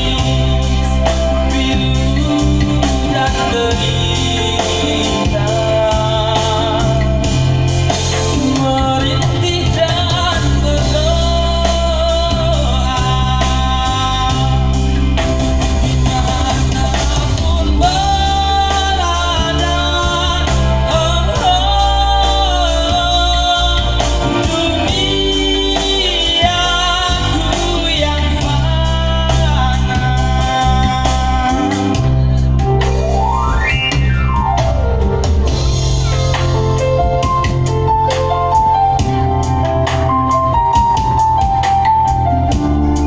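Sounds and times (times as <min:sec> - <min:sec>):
person singing: 0:00.0 - 0:33.7
bass and drums: 0:00.0 - 0:43.0.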